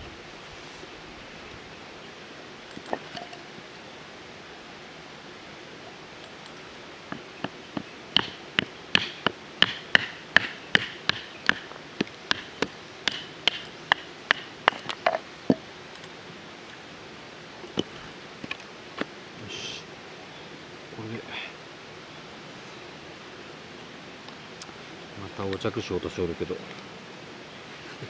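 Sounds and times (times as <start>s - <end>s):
sharp knocks on wood: 7.1s - 14.9s.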